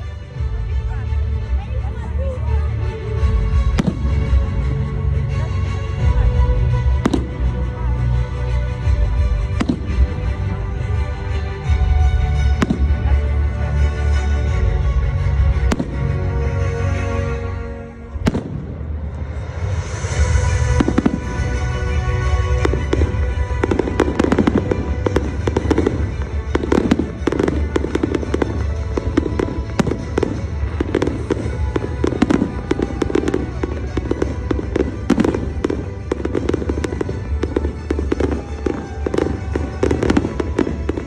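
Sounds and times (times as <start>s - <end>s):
music playing: 0.0s - 41.0s
fireworks bangs: 3.5s - 4.7s, 6.8s - 7.9s, 8.8s - 10.5s, 12.3s - 13.2s, 18.2s - 41.0s.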